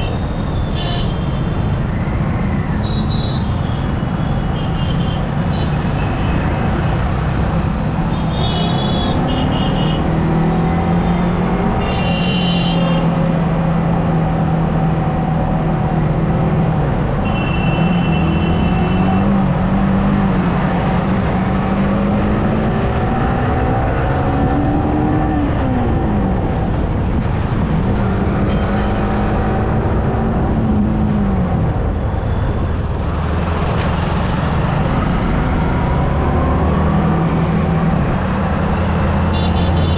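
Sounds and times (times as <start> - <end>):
wind and road noise: 0.0 - 39.9
vehicle horn beeps: 17.2 - 19.1, 39.3 - 39.9.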